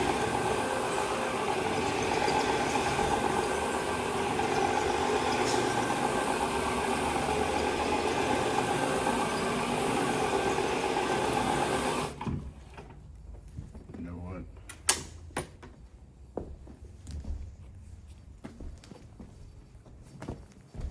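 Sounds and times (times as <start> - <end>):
electric motor humming: 0.0 - 12.2.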